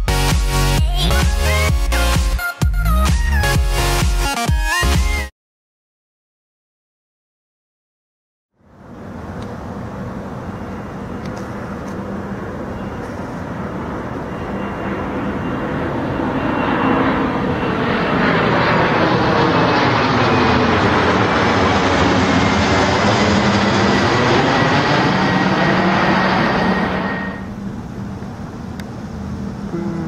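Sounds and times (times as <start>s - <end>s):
high-pitched engine whine: 8.6s - 30.0s
jet engines roaring: 8.7s - 29.7s.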